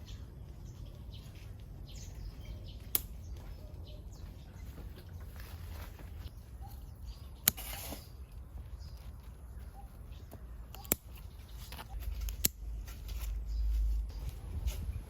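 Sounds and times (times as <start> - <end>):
faint low rumble: 11.8 - 15.0.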